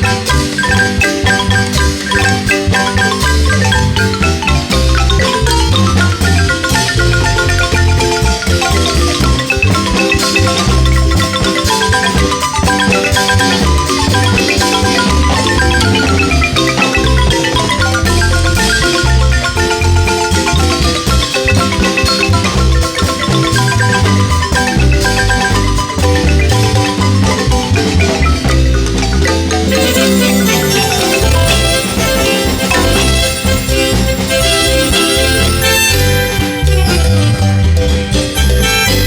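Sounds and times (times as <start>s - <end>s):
marimba ensemble playing: 0.0s - 39.0s
pulsing bass line: 0.0s - 39.0s.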